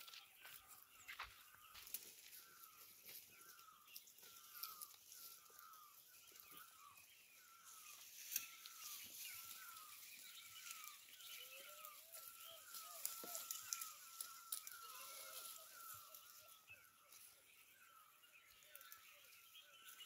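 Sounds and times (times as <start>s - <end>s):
bird calling: 0.0s - 20.0s
rustling in dry grass: 0.0s - 20.0s.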